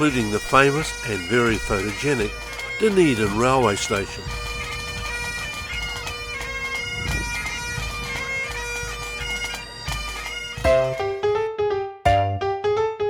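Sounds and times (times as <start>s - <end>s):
bagpipe tune: 0.0s - 11.5s
piano music: 10.6s - 13.0s.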